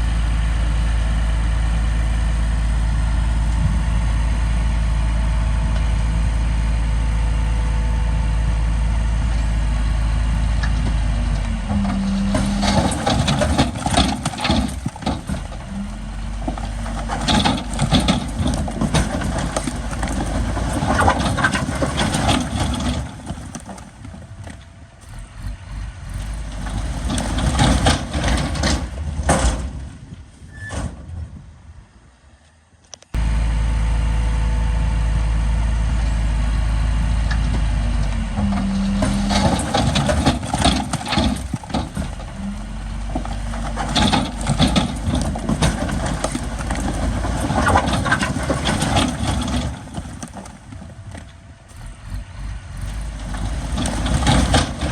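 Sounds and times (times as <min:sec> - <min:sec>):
diesel earthmoving machinery running: 0:00.0 - 0:54.9
clanks and knocks: 0:10.6 - 0:30.0, 0:38.2 - 0:54.9.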